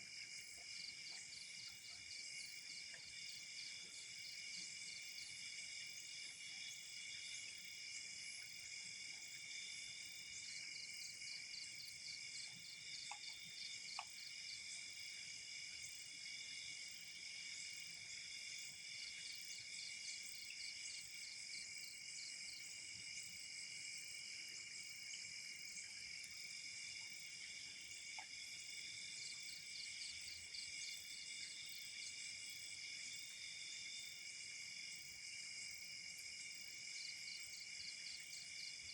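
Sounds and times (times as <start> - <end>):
faint ticks: 12.9 - 14.3, 28.1 - 28.4.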